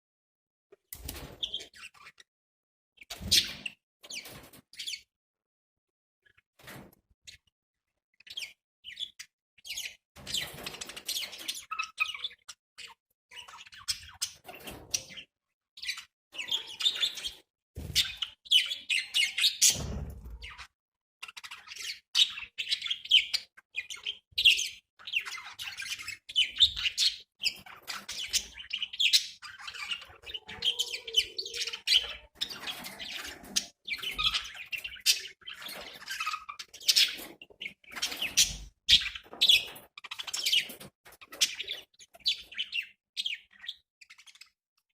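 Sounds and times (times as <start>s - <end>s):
budgerigars chirping: 8.3s - 20.6s, 21.2s - 44.5s.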